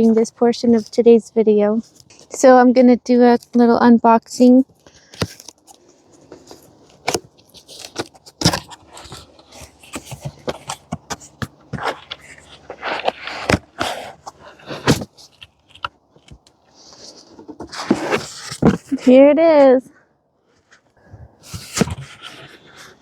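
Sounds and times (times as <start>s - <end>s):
packaging rustling: 4.6s - 19.0s, 21.4s - 23.0s
cardboard box being handled: 4.7s - 19.0s, 21.4s - 23.0s.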